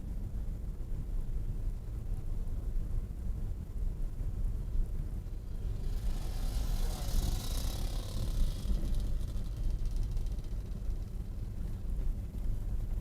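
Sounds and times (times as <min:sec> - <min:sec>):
car passing by: 0:05.3 - 0:10.7.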